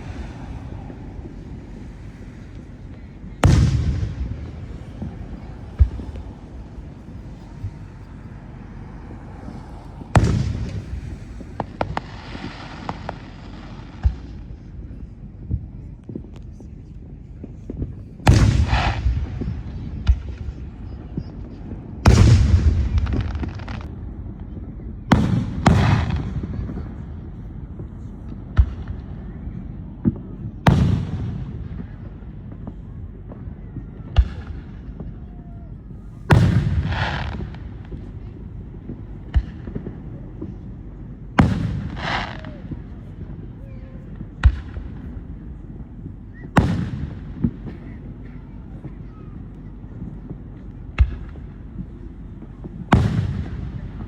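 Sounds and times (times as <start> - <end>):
firework boom: 0.0 - 8.6, 9.4 - 14.5, 22.0 - 29.3, 36.2 - 49.2
firework cracks and pops: 0.0 - 54.0.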